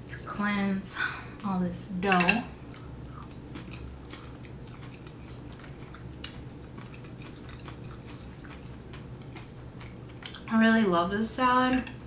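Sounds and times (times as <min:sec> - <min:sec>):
person chewing salad: 0:02.6 - 0:10.5.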